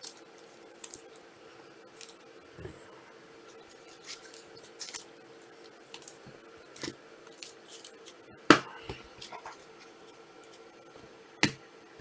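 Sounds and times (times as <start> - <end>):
trading cards rustling and sliding: 0.0 - 1.3, 1.9 - 2.3, 3.4 - 10.7
faint steady hum: 0.0 - 12.0.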